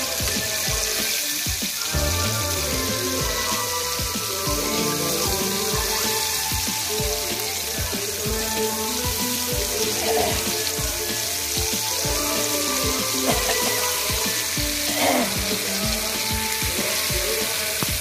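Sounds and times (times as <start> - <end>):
background music with beat: 0.0 - 18.0
fish sizzling in bubbling oil: 0.0 - 18.0.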